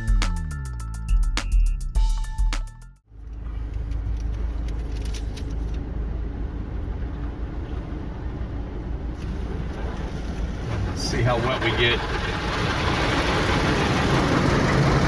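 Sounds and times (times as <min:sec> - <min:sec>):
chiming percussive intro music: 0:00.0 - 0:02.9
car engine low rumble: 0:03.1 - 0:15.0.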